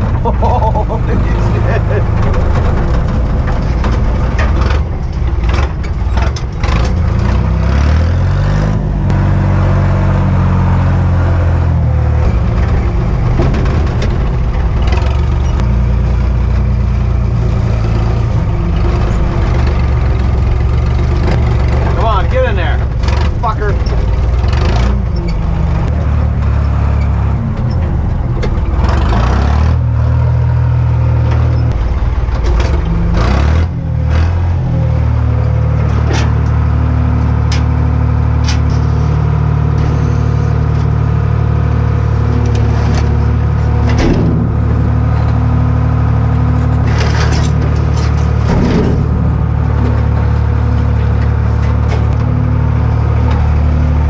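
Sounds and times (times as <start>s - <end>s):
sharp clicks and rattles: 0.0s - 7.8s, 12.2s - 30.0s, 31.2s - 34.5s, 42.2s - 53.6s
diesel truck engine running: 0.0s - 54.0s.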